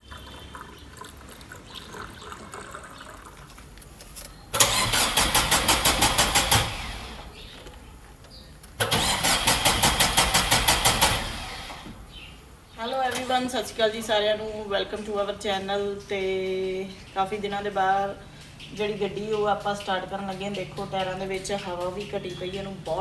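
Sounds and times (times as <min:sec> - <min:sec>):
car starter motor cranking: 0:04.6 - 0:07.5, 0:08.8 - 0:12.1.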